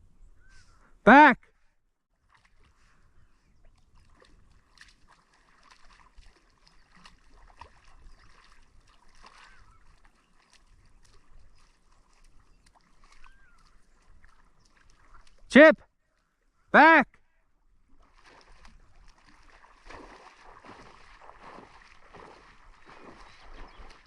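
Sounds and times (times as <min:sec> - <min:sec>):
distant bird calls: 0:00.2 - 0:01.0, 0:06.5 - 0:15.4, 0:20.9 - 0:24.0.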